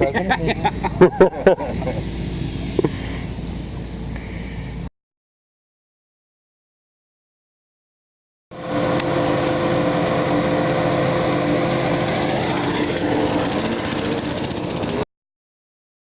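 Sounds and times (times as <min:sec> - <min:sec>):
motorcycle engine running: 0:08.5 - 0:15.0.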